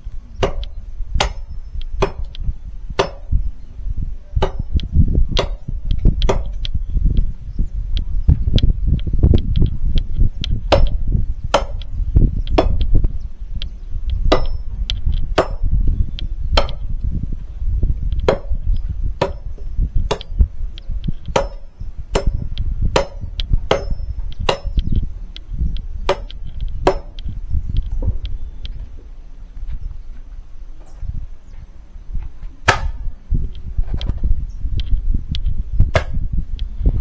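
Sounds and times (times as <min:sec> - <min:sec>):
low rumble: 0:00.0 - 0:37.0
axe chopping firewood: 0:00.4 - 0:02.4, 0:03.0 - 0:03.4, 0:04.4 - 0:06.7, 0:10.6 - 0:11.9, 0:12.6 - 0:12.9, 0:14.3 - 0:14.6, 0:15.3 - 0:15.8, 0:16.6 - 0:16.9, 0:18.2 - 0:18.6, 0:19.2 - 0:20.4, 0:21.2 - 0:24.9, 0:26.0 - 0:27.2, 0:32.6 - 0:33.1, 0:35.9 - 0:36.2.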